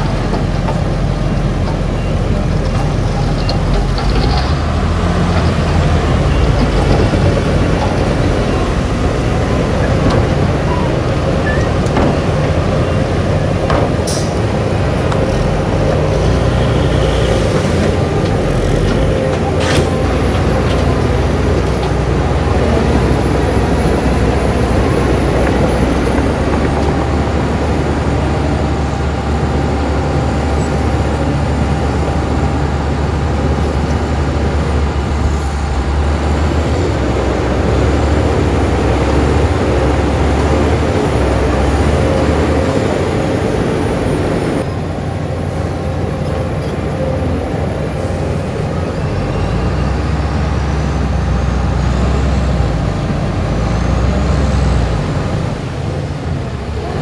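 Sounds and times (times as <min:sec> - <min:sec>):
diesel machinery running: 0:00.0 - 0:57.0.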